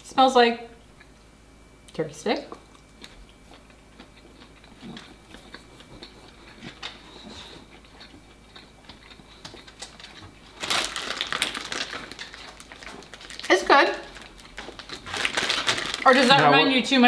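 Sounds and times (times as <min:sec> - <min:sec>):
chewing snack sticks: 0:02.5 - 0:16.5
plastic snack bag crinkling: 0:09.6 - 0:16.6.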